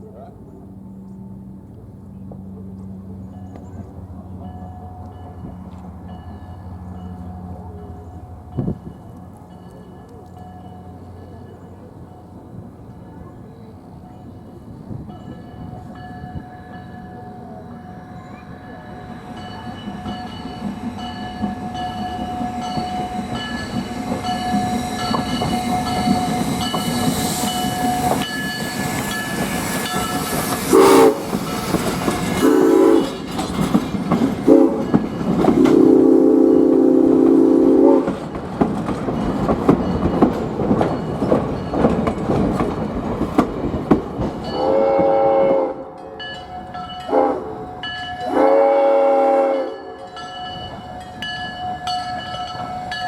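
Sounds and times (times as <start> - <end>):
train wheels clattering on rails: 1.6 - 48.6
steam whistle blasts: 30.6 - 31.3, 32.4 - 33.2, 34.5 - 34.8, 35.6 - 38.1, 44.6 - 45.9, 47.1 - 47.6, 48.2 - 50.0.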